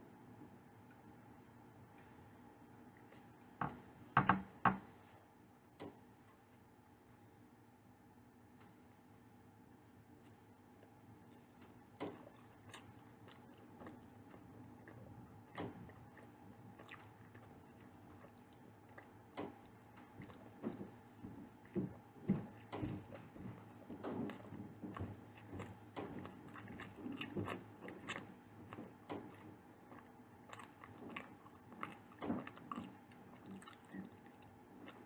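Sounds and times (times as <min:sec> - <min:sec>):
person chewing pastry: 0:10.3 - 0:35.0.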